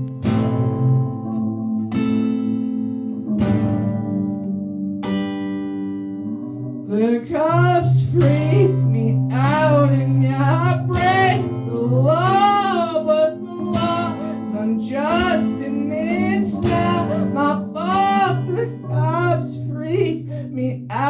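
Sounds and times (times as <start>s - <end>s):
strummed guitar: 0.0s - 21.0s
low bass line: 6.1s - 21.0s
person singing: 6.9s - 21.0s.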